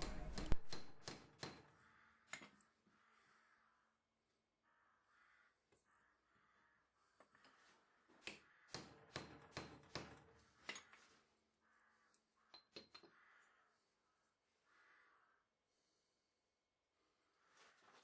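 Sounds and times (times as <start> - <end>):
hammer tapping on metal bar: 0.0 - 1.7.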